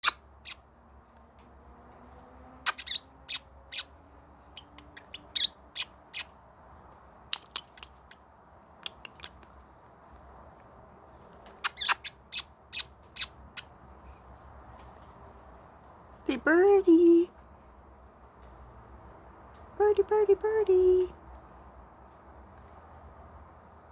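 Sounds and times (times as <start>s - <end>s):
bird making kissing noises: 0.0s - 0.6s, 2.6s - 3.0s, 4.6s - 6.3s, 7.3s - 8.2s, 8.8s - 9.6s, 11.4s - 13.3s.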